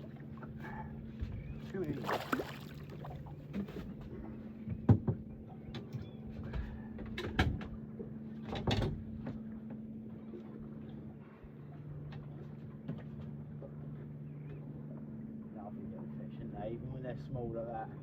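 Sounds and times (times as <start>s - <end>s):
knocks and thumps on boat: 0.0s - 10.0s
steady low hum: 0.0s - 18.0s.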